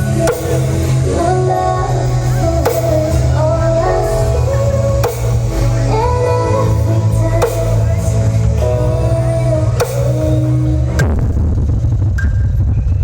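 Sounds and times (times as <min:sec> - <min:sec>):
loud music with booming bass: 0:00.0 - 0:13.0
sharp beat hits: 0:04.9 - 0:06.0.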